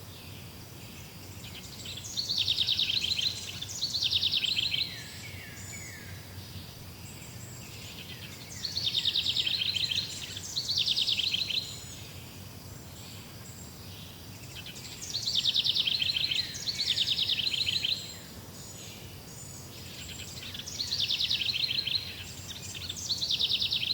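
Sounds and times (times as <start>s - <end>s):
faint high bird chirps: 0.2s - 12.4s
songbird rapid trill: 0.2s - 23.9s.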